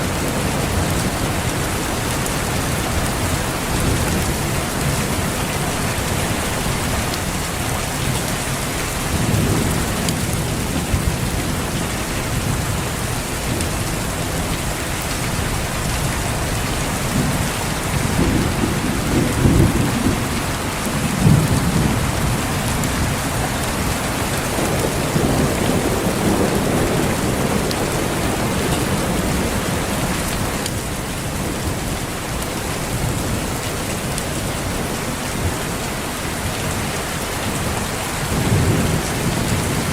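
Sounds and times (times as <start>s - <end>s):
heavy rain hissing: 0.0s - 39.9s
distant thunder rolling: 16.4s - 30.4s.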